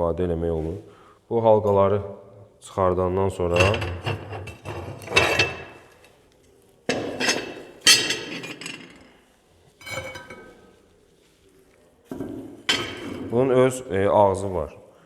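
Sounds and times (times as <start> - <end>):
metal rings clanking on stove: 3.5 - 5.9, 6.9 - 9.2, 9.8 - 10.7.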